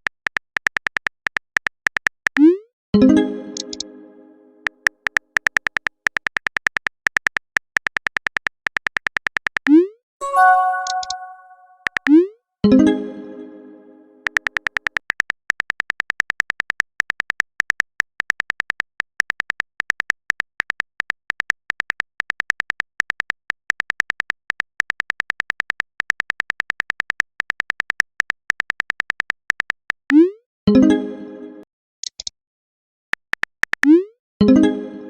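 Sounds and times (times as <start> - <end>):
typing clicks: 3.6 - 3.8, 10.6 - 12.1, 32.0 - 32.3, 33.2 - 34.0
rising notification pop: 10.2 - 11.9.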